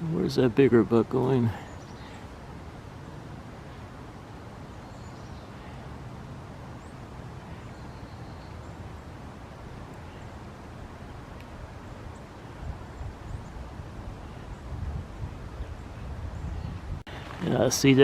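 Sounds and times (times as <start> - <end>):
faint high bird chirps: 6.8 - 8.8.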